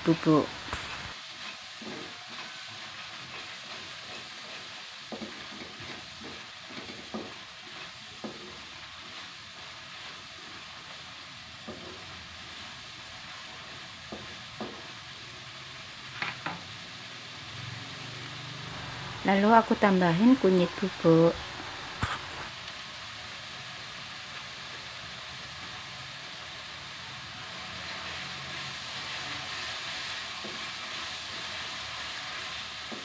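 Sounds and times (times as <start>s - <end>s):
paste sizzling in oil: 0.0s - 33.0s
spatula scraping a pan: 0.7s - 11.0s, 11.6s - 12.3s, 21.7s - 22.5s.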